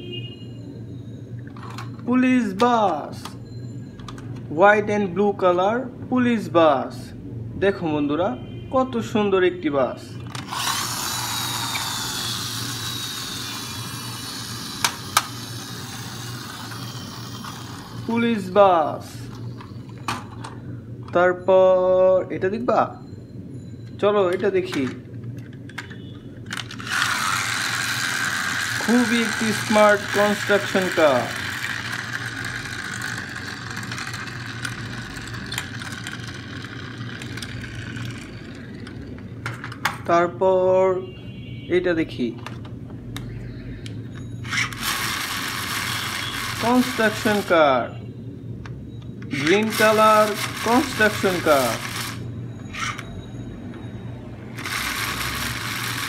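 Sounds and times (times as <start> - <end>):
toy wheels and gears whirring: 1.0 - 4.4, 10.2 - 20.6, 23.9 - 39.9, 44.0 - 48.0, 49.2 - 56.0.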